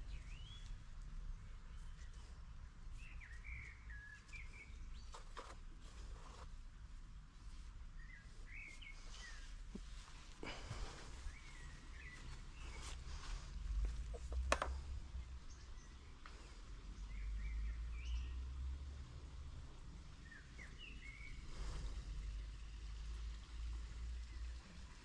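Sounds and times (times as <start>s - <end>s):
small birds chirping: 0.0s - 6.5s, 7.5s - 18.5s, 20.1s - 25.0s
rustling plants: 0.0s - 15.2s.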